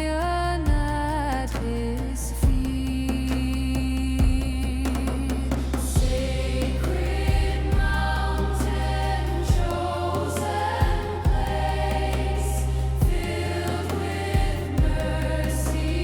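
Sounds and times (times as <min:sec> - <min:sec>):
low bass: 0:00.0 - 0:16.0
choir singing a hymn: 0:06.0 - 0:16.0
deep drum hits: 0:14.2 - 0:15.2.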